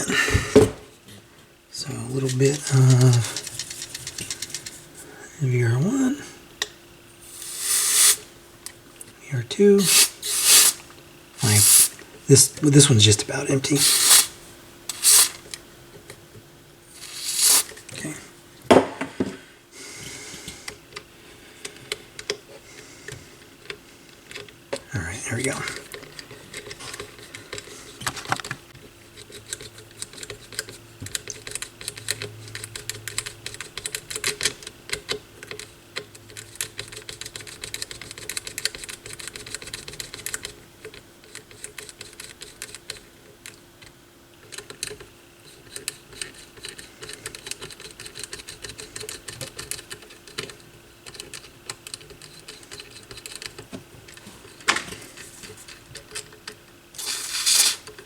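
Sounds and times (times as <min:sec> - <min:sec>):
faint steady hum: 0:00.0 - 0:58.0
small parts clicking and clattering: 0:02.9 - 0:04.8, 0:13.8 - 0:15.5, 0:45.7 - 0:58.0.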